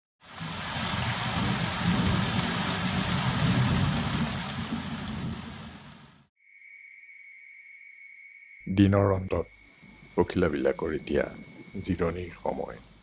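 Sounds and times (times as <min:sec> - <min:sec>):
heavy rain falling: 0:00.2 - 0:06.3
faint high-pitched tone: 0:06.4 - 0:13.0.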